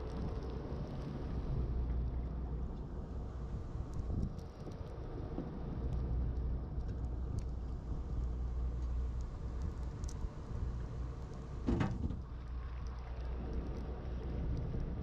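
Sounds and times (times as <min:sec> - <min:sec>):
boat engine rumble: 0:00.0 - 0:15.0
faint ticks: 0:03.8 - 0:15.0.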